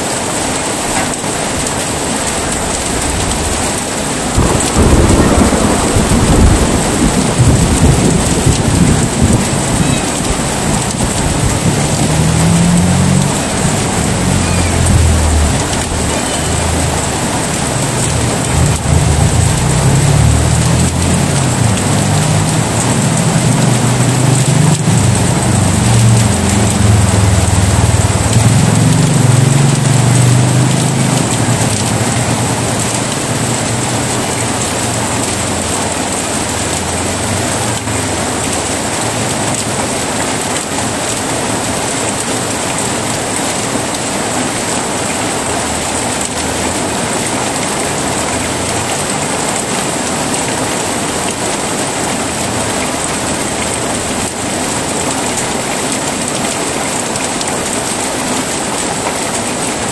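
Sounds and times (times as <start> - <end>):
heavy rain falling: 0.0 - 59.9
low rumble of thunder: 2.5 - 30.6.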